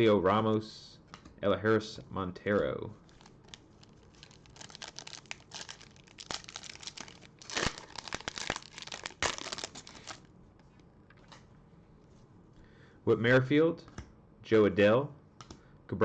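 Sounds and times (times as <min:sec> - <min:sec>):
wrapper crinkling and tearing: 0:03.0 - 0:10.3.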